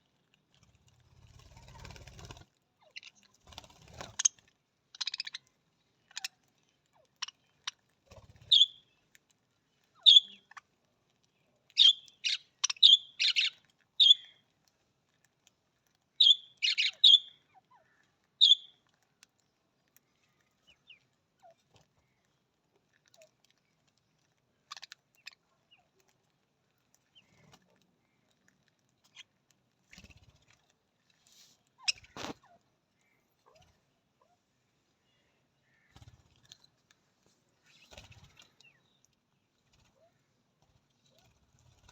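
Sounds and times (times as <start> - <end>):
budgerigars chirping: 11.8 - 14.3, 16.2 - 17.3, 18.4 - 18.6.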